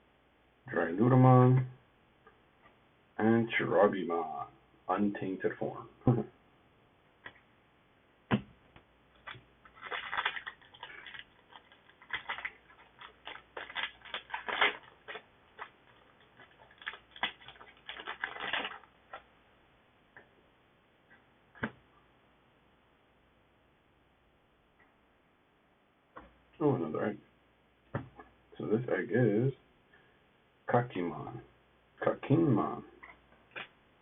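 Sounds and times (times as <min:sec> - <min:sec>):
foil wrapper crinkling: 0:09.2 - 0:19.3
trading cards rustling: 0:09.2 - 0:19.3.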